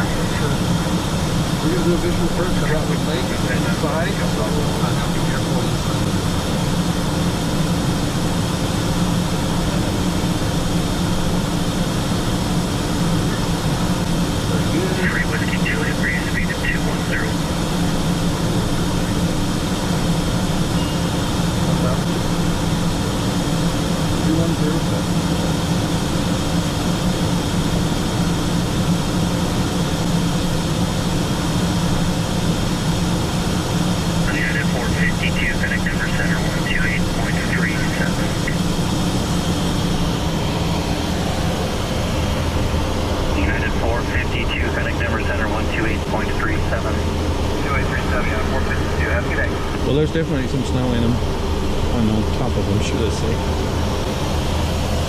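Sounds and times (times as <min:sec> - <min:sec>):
low jet engine hum: 0:00.0 - 0:55.0.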